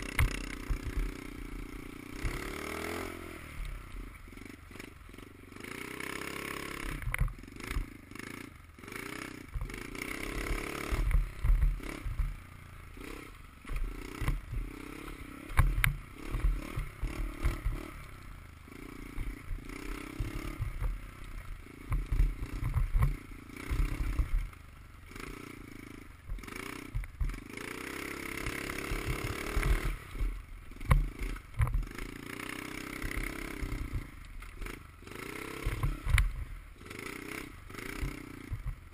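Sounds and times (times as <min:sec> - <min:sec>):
dirt bike engine revving: 0:00.0 - 0:38.9
thumps and clatter: 0:10.9 - 0:12.4, 0:13.6 - 0:14.7, 0:21.8 - 0:24.5, 0:26.3 - 0:27.4, 0:28.4 - 0:32.0, 0:35.6 - 0:36.5, 0:38.0 - 0:38.9.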